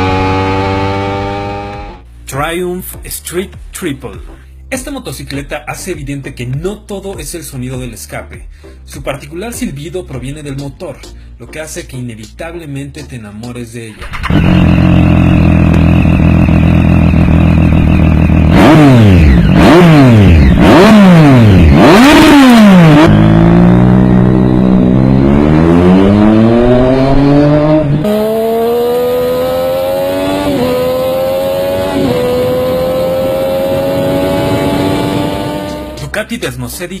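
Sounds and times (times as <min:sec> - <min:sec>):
motorcycle engine revving: 0:00.0 - 0:02.0, 0:14.0 - 0:36.1.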